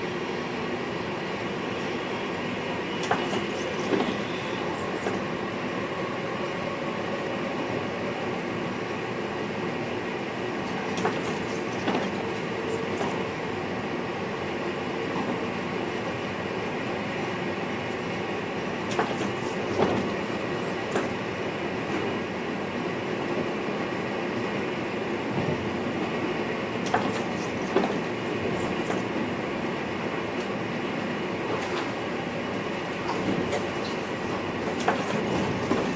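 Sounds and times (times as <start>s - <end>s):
train rolling noise: 0.0s - 35.9s
wheels clacking over rail joints: 26.8s - 29.2s, 33.0s - 35.9s.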